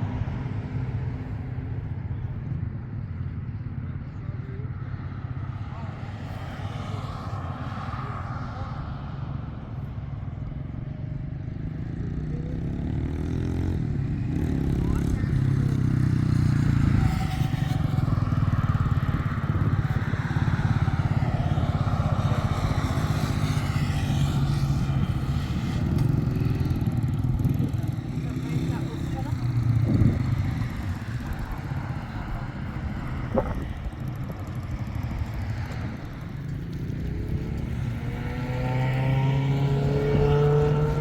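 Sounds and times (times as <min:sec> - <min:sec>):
vehicle engine running: 0:17.8 - 0:41.0.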